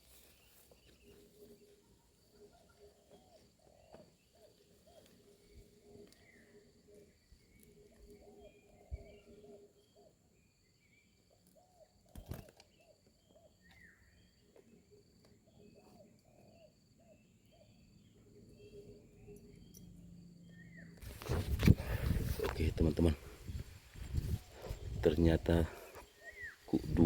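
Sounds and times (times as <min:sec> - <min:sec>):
doves cooing: 0:01.3 - 0:10.2.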